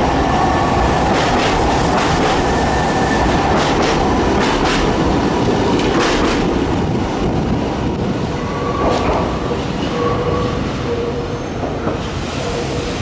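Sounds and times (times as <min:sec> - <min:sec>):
approaching train rumble: 0:00.0 - 0:13.0
train wheels clacking over rail joints: 0:01.1 - 0:02.5, 0:03.5 - 0:05.0, 0:05.7 - 0:06.6.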